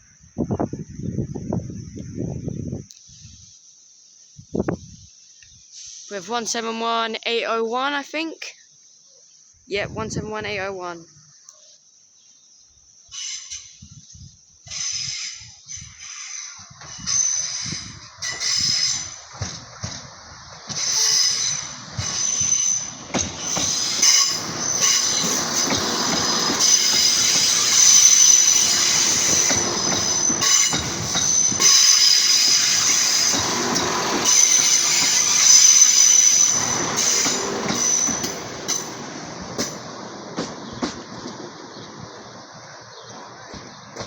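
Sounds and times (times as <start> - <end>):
train wheels squealing: 13.1 - 14.0, 14.6 - 41.4
train rolling rumble: 14.6 - 44.0
wheels clicking over rail joints: 14.7 - 42.2.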